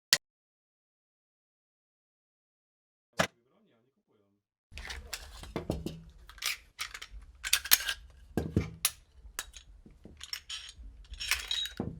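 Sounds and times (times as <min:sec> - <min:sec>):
rifle parts clicking and clanking: 0:04.8 - 0:11.9.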